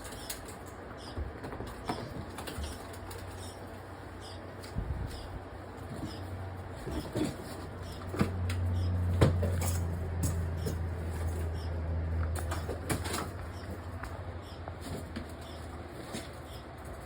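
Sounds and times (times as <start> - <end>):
nestling birds chirping: 0.0 - 9.2, 13.2 - 17.0
steady low hum: 0.0 - 17.0.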